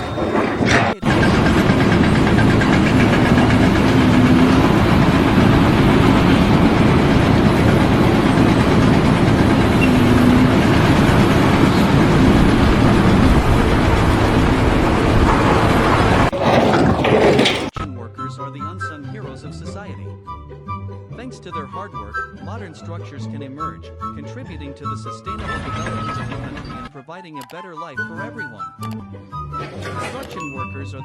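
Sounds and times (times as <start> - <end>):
engine running loudly: 0.0 - 16.5.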